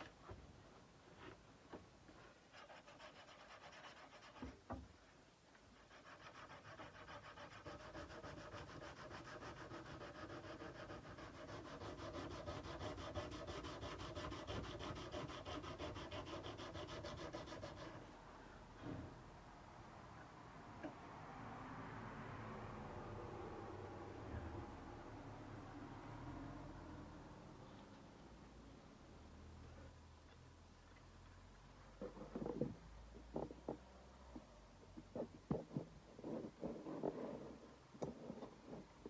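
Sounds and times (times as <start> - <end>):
sandpaper rubbing on steel blade: 2.5 - 4.4, 5.8 - 18.1.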